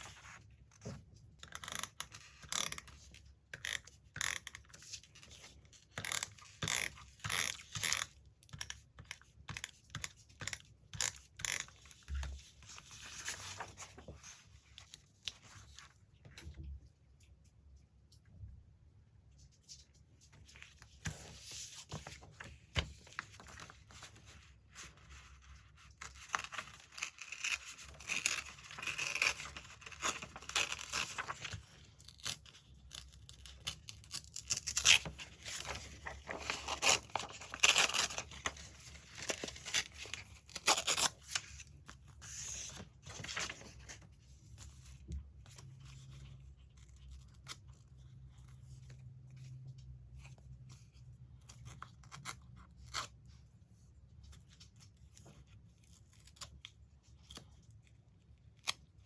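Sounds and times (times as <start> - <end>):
magazine paper ripping: 26.1 - 32.4.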